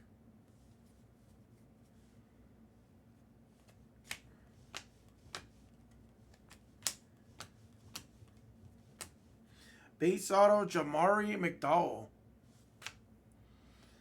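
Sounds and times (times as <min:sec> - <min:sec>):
trading cards clicking: 0:04.0 - 0:09.1.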